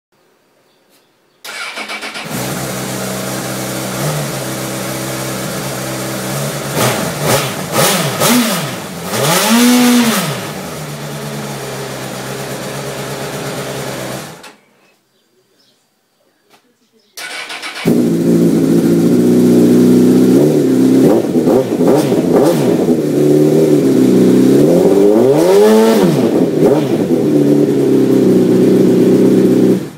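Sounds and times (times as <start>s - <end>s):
motorcycle engine revving and idling: 1.5s - 14.4s, 17.2s - 29.9s.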